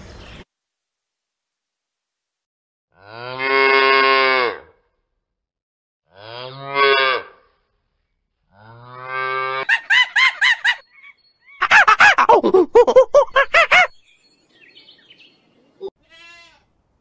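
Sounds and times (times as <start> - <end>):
cow mooing: 3.0 - 4.8, 6.1 - 7.5, 8.5 - 9.6
monkey high calls: 9.6 - 14.0.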